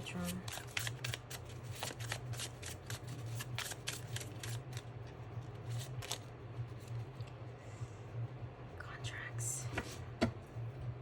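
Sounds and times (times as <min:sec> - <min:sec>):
steady low hum: 0:00.0 - 0:11.0
cards being shuffled: 0:00.1 - 0:04.9, 0:05.6 - 0:07.0.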